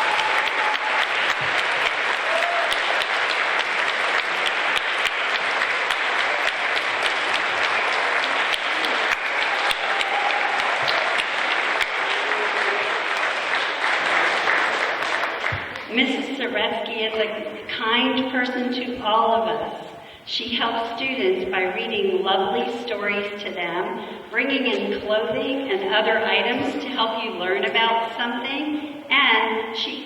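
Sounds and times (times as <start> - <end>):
children clapping: 0.0 - 15.9.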